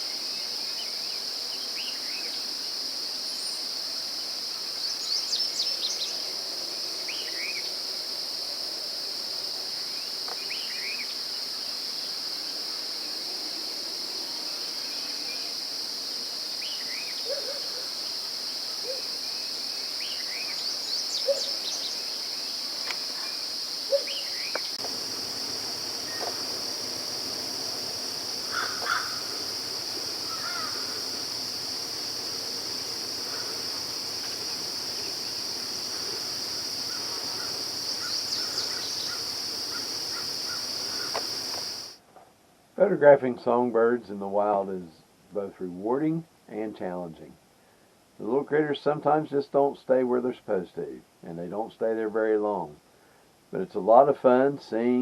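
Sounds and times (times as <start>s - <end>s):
insects droning in chorus: 0.0s - 42.0s
bird calls and chirps: 20.0s - 22.1s, 23.2s - 24.8s, 37.0s - 41.3s.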